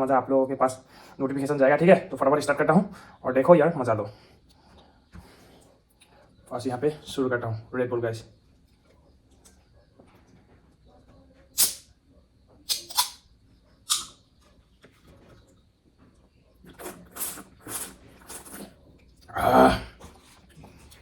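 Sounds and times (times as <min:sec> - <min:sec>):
can opening hiss: 0:11.6 - 0:11.9, 0:12.7 - 0:13.2, 0:13.9 - 0:14.1
person sipping: 0:16.7 - 0:21.0.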